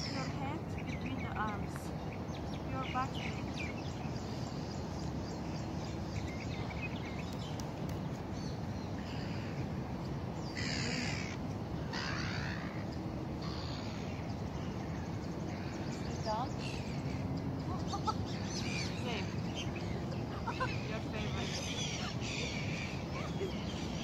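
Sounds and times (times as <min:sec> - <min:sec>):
outdoor background noise: 0:00.0 - 0:24.0
harsh bird calls: 0:08.4 - 0:24.0.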